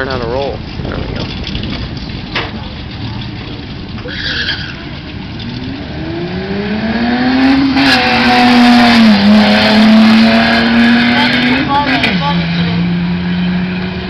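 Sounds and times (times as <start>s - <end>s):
car engine accelerating hard: 5.3s - 14.0s.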